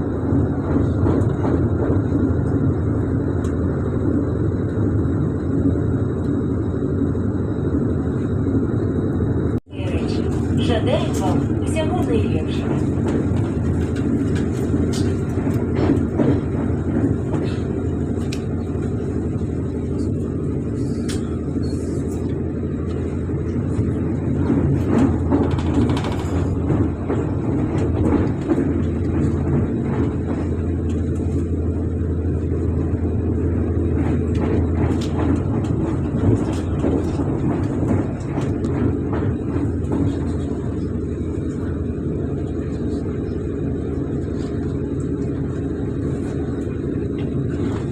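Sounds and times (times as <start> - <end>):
train wheels rumbling on rails: 0.0 - 47.9
wheel clatter over track: 9.8 - 47.9.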